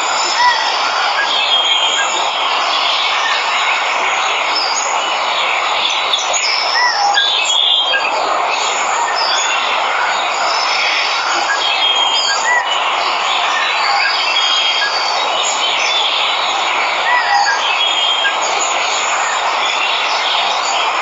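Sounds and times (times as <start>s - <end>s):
birds chirping and whistling: 5.8s - 8.1s, 10.5s - 12.8s, 17.1s - 18.4s.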